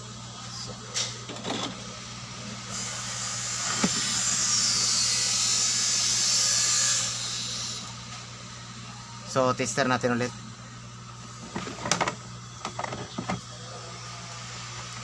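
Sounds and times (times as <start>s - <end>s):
low electrical hum: 0.0s - 15.0s
blower air rushing hiss: 2.7s - 5.8s.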